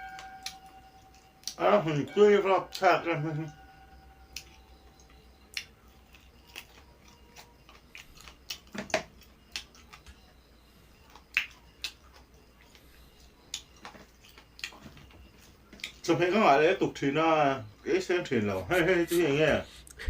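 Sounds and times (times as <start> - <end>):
person eating crunchy bites: 5.5 - 10.1.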